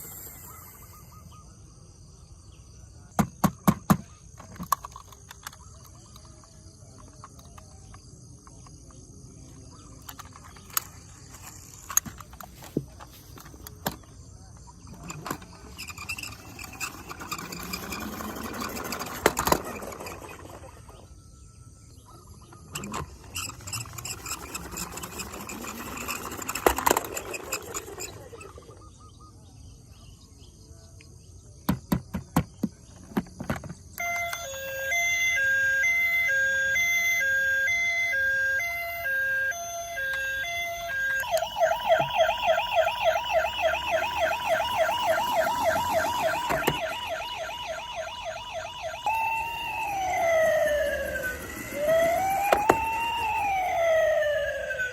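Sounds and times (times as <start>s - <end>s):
toy siren two-tone wail: 0.0s - 1.3s, 14.9s - 21.2s, 22.7s - 28.9s, 34.0s - 54.9s.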